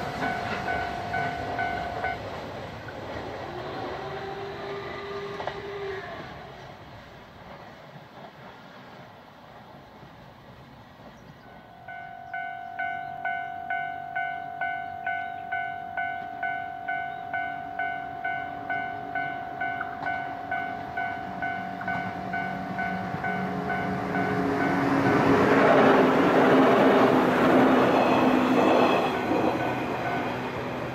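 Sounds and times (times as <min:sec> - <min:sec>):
level crossing bell ringing: 0:00.0 - 0:02.2, 0:11.6 - 0:24.8
approaching train: 0:00.0 - 0:30.9
steady tone: 0:11.5 - 0:30.9.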